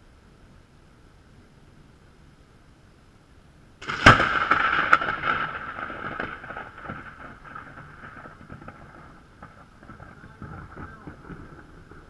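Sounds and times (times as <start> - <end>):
thunderclap: 3.8 - 12.0.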